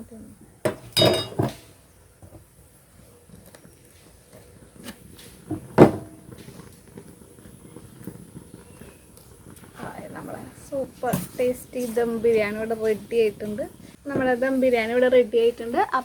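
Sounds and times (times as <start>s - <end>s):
utensils knocking metal pot: 0.7s - 1.7s.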